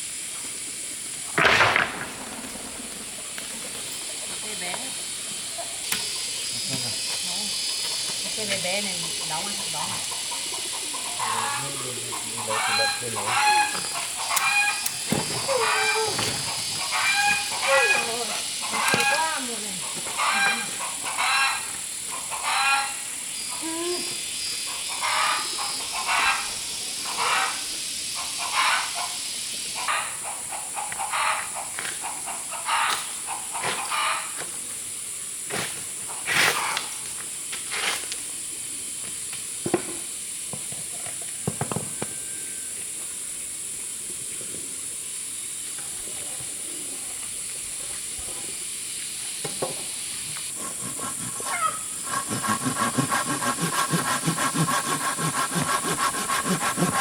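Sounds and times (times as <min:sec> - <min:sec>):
steady high hiss: 0:00.0 - 0:57.0
piglet squealing: 0:51.4 - 0:52.9.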